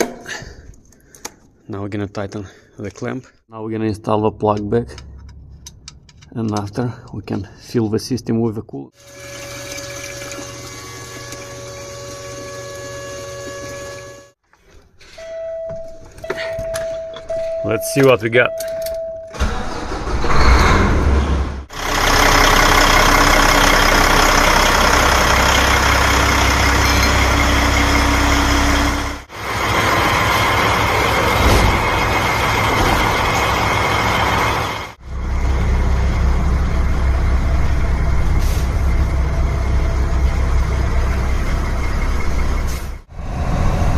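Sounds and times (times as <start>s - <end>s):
diesel engine idling: 21.7s - 43.9s.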